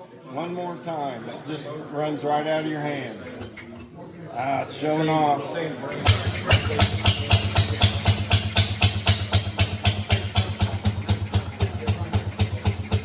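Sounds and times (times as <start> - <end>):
two-stroke boat motor popping: 3.1 - 4.5, 5.8 - 13.0.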